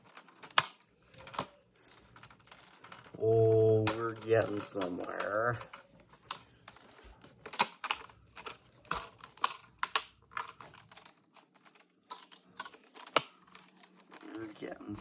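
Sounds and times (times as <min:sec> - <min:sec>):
plastic laptop bezel clicking: 0:00.0 - 0:14.2.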